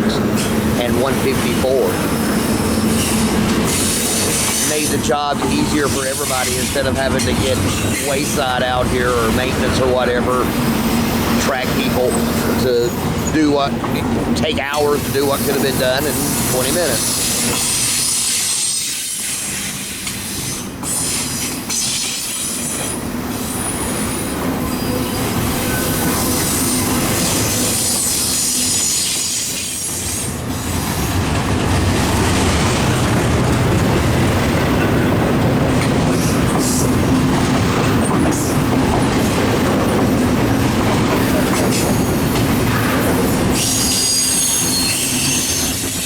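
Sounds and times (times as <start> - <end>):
train wheels clacking over rail joints: 0.0 - 23.7, 25.6 - 46.0
train rumble: 0.0 - 46.0
high-pitched wheel squeal: 43.5 - 46.0.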